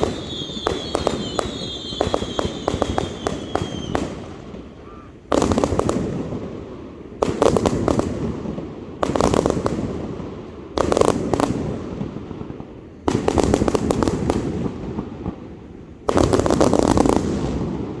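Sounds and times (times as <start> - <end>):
firework cake rapid bangs: 0.0 - 4.4.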